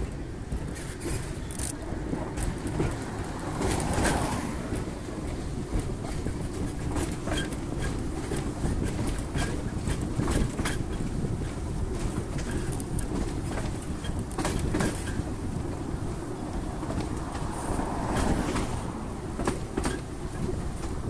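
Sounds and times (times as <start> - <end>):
train carriages low rumble: 0.0 - 21.0
wheel clacks over rail joints: 0.0 - 21.0.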